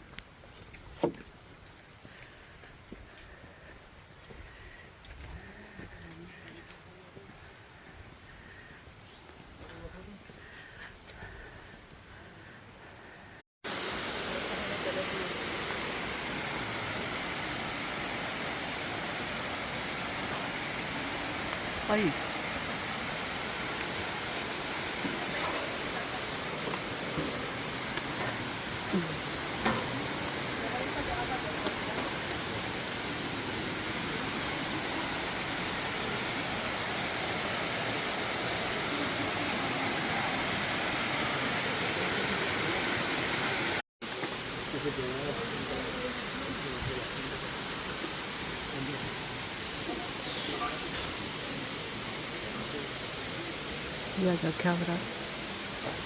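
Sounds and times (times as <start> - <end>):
waterfall rushing: 13.7 - 56.0.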